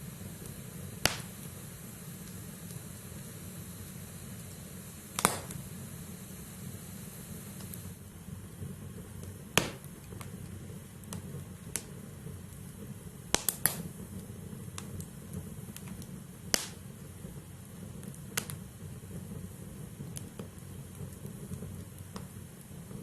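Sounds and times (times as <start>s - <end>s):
firewood popping and crackling: 0.0s - 6.2s, 7.3s - 23.0s
fire rumbling: 0.0s - 23.0s.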